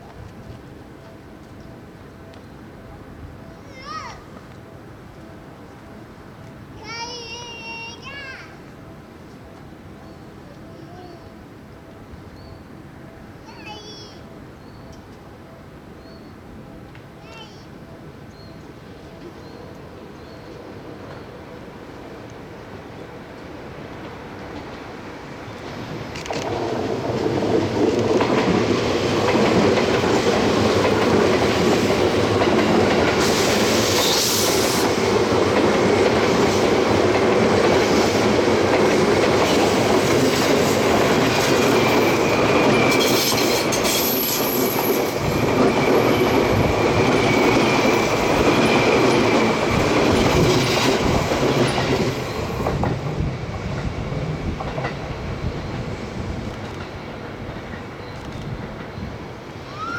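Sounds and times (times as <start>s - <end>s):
train wheels clacking over joints: 25.6s - 59.1s.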